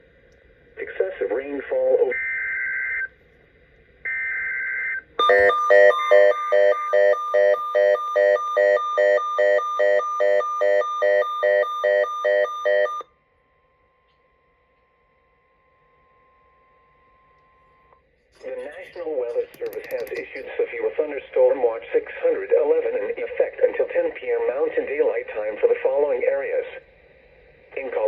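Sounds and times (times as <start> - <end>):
high buzzing data tone: 5.2 - 12.5.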